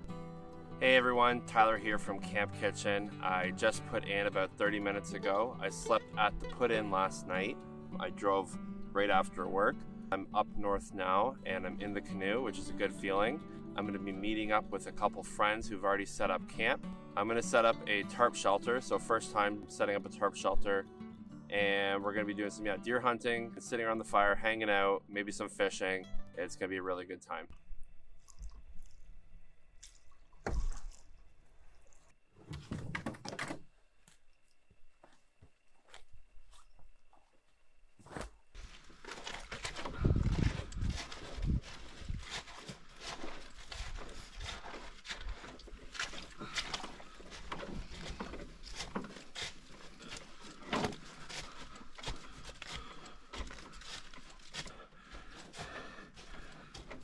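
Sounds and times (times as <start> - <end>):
canoe and gear knocking and scuffing: 3.8 - 7.0, 32.4 - 33.7, 38.0 - 57.0
paddle splashing water: 28.2 - 32.3, 43.4 - 52.2.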